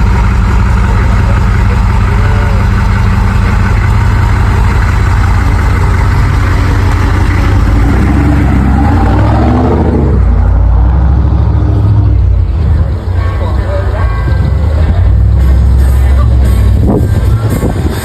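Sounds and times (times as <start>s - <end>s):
vehicle engine idling and revving: 0.0s - 18.0s.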